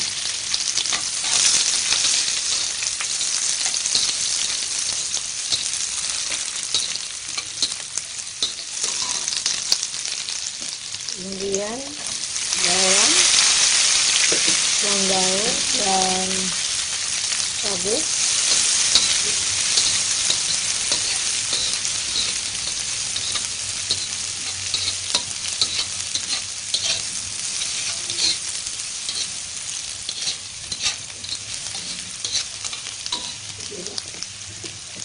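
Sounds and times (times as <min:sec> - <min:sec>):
vegetables sizzling in hot oil: 0:00.0 - 0:35.0
spatula scraping a pan: 0:00.8 - 0:07.8, 0:08.4 - 0:09.6, 0:18.2 - 0:29.4, 0:30.0 - 0:33.5.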